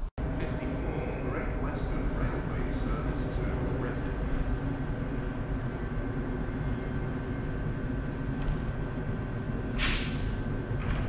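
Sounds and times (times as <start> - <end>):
electric train humming: 0.0 - 11.0
air brake hiss: 9.8 - 10.4.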